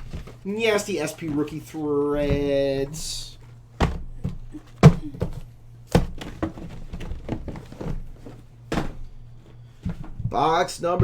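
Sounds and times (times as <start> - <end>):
objects knocking being set down: 3.8 - 9.1.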